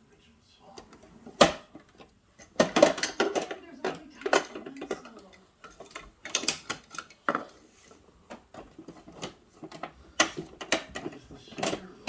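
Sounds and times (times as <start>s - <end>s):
plastic toy trucks clacking: 1.0s - 7.6s, 8.2s - 12.0s.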